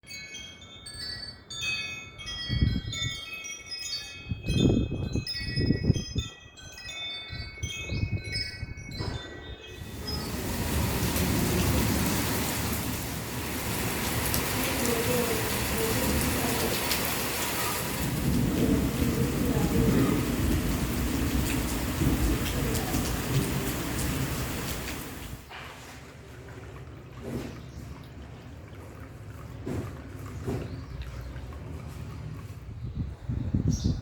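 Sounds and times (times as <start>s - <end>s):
metal wind chimes tinkling: 0.0s - 12.2s
low buffets of wind: 0.3s - 25.5s, 29.3s - 34.0s
heavy rain downpour: 9.8s - 25.5s.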